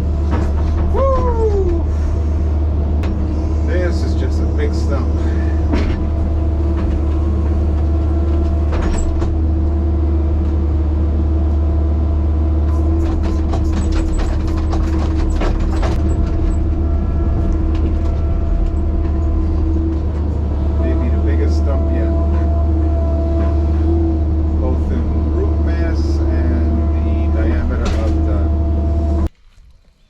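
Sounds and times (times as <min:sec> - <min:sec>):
clanks and knocks: 0:00.0 - 0:01.4, 0:03.0 - 0:03.5, 0:05.6 - 0:09.5, 0:12.9 - 0:20.8
large engine droning: 0:00.0 - 0:29.3.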